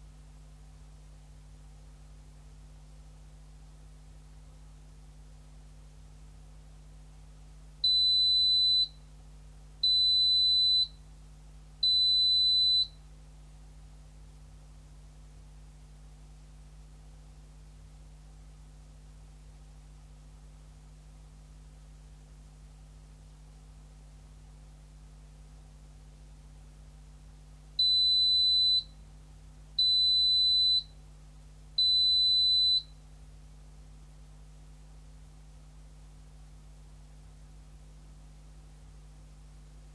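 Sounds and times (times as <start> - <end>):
faint low hum: 0.0 - 39.9
washing machine buzzer beeping: 7.8 - 9.0, 9.8 - 11.0, 11.8 - 13.0, 27.8 - 28.9, 29.8 - 30.9, 31.8 - 32.9.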